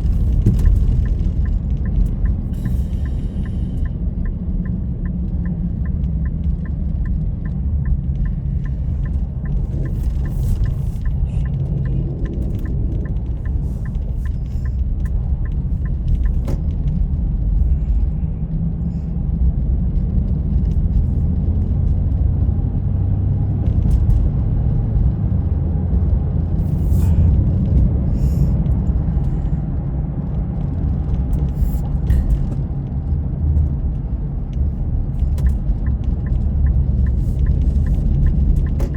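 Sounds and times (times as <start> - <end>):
light regular ticking: 0.0 - 17.7, 33.8 - 38.9
vehicle driving rumble: 0.0 - 38.9.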